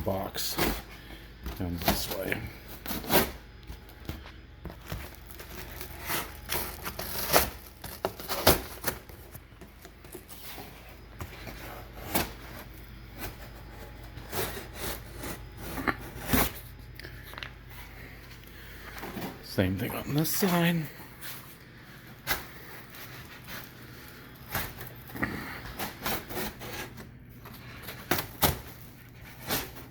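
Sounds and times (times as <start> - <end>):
cardboard tearing: 4.7 - 10.7.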